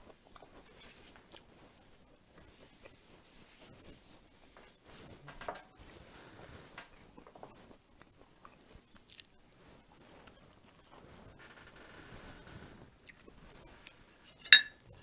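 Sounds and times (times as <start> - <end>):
person chewing bread: 0.0 - 3.7, 7.0 - 10.6.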